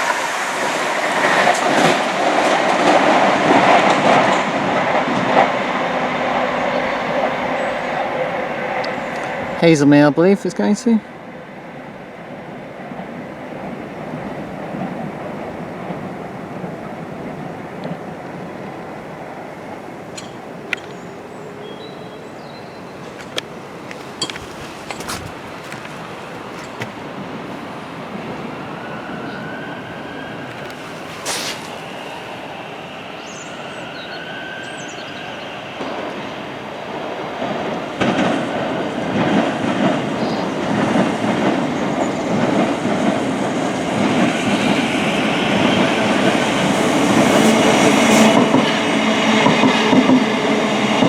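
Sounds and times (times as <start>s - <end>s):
passenger train rumbling past: 0.0s - 51.0s.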